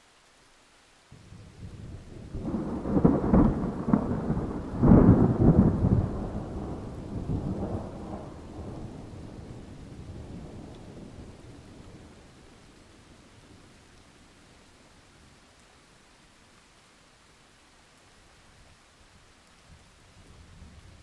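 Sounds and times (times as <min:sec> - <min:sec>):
thunder crackling and rumbling: 0:01.3 - 0:12.2.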